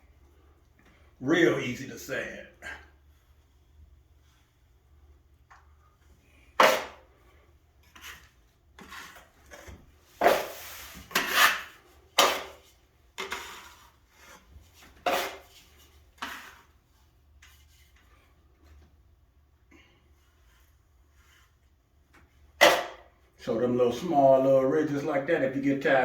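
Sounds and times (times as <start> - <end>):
hand sanding drywall: 6.3 - 18.5.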